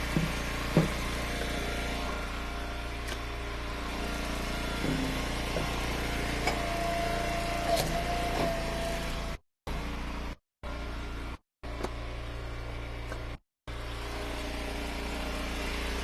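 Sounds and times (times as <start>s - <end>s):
small engine running: 0.0s - 16.0s
sharp knocks on wood: 0.1s - 1.0s.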